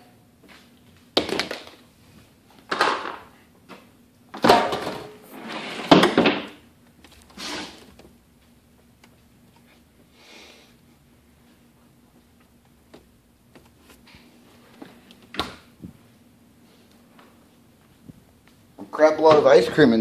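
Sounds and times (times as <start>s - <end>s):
items bumping in a cupboard: 4.3s - 5.2s, 5.8s - 6.6s.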